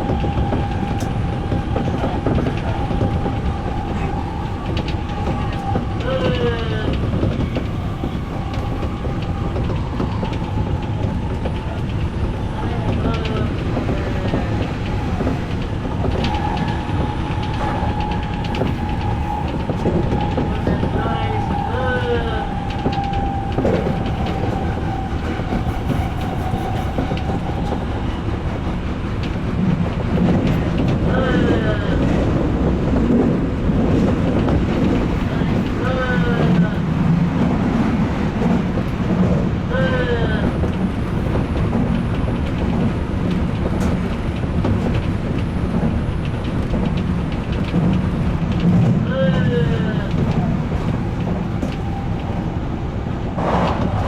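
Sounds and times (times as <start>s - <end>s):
train high whine: 0.0s - 30.7s
train wheels rumbling on rails: 0.0s - 54.0s.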